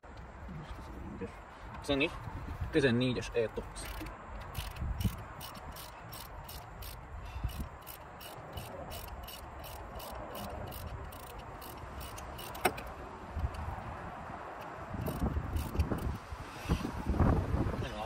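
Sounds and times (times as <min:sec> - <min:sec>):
wind rumble on microphone: 0:00.2 - 0:03.3, 0:04.4 - 0:07.8, 0:13.2 - 0:18.0
ratchet wrench clicking: 0:03.8 - 0:13.8, 0:14.6 - 0:16.2.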